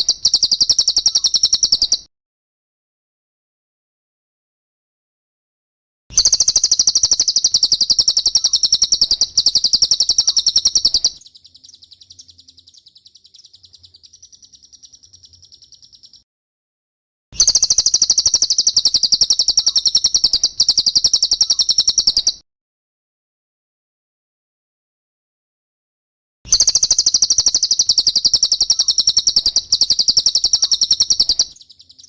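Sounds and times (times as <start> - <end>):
bird trilling: 0.0 - 2.0, 6.2 - 16.2, 17.4 - 22.4, 26.5 - 32.0.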